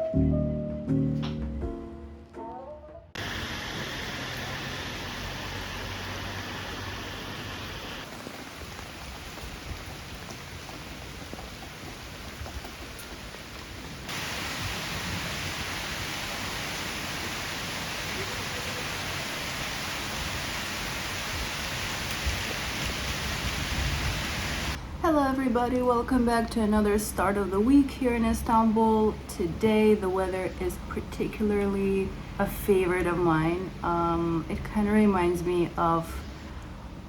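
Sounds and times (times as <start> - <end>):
steady rain falling: 3.2 - 24.8.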